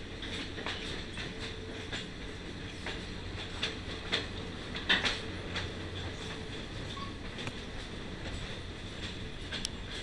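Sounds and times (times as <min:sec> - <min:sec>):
rumble of wheels on rail: 0:00.0 - 0:10.0
wheels clacking over rail joints: 0:00.0 - 0:10.0.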